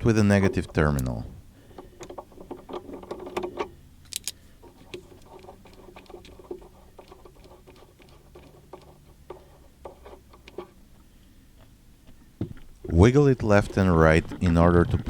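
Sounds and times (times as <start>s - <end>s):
sharp metallic clicks: 0.4s - 1.2s, 2.0s - 5.0s
ratchet wrench clicking: 4.0s - 4.4s.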